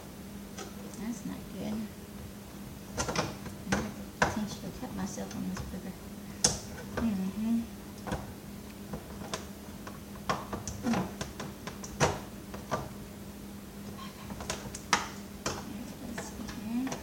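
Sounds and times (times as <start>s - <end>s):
faint steady hum: 0.0s - 17.0s
plastic parts clicking and knocking: 3.0s - 4.4s, 8.9s - 12.9s.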